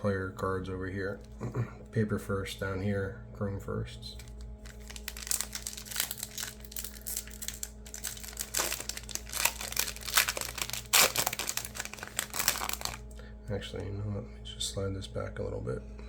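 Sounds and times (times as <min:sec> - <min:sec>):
foil wrapper crinkling: 0:04.2 - 0:13.1.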